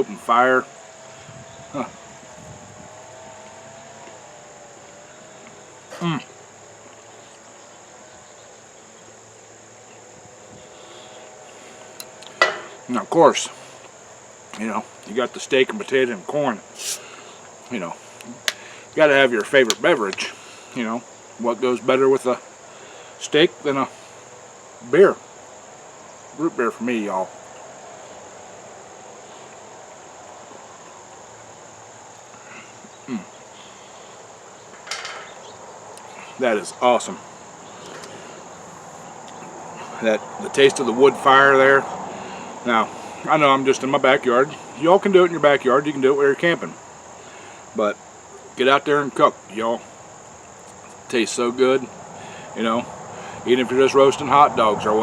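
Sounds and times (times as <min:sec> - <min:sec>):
crickets chirping: 0:00.0 - 0:55.0
person making sliding voiced sound: 0:16.8 - 0:17.0
man's falling vocal sound: 0:32.4 - 0:33.3.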